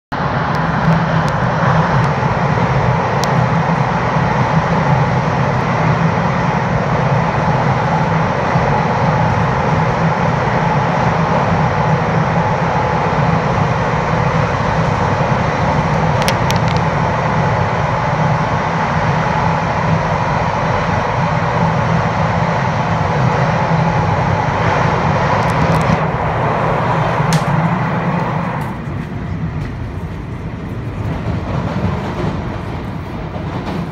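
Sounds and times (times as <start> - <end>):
train rumbling past: 0.1 - 33.9.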